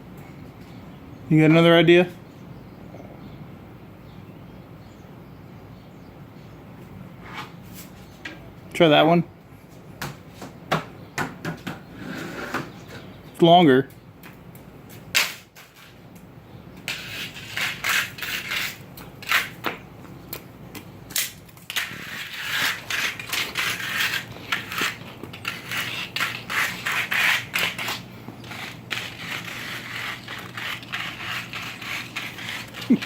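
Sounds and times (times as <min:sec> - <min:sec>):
tool scraping along garage floor: 0:07.2 - 0:08.2, 0:11.8 - 0:13.1, 0:14.9 - 0:16.0, 0:16.8 - 0:19.8, 0:21.4 - 0:33.0.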